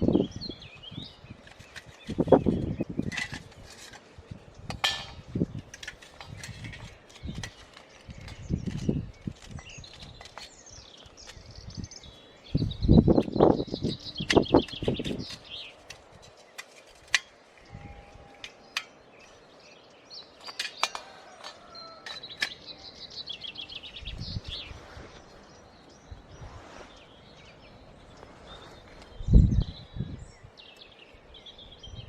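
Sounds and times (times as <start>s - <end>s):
songbird trilling: 6.7s - 16.5s.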